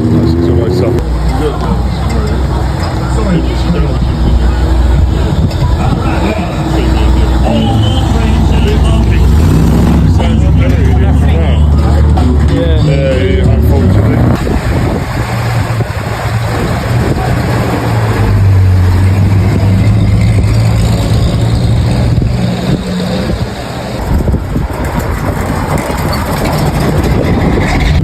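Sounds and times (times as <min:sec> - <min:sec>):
rough mechanical noise: 0:00.0 - 0:28.0
vehicle engine running: 0:00.0 - 0:28.0.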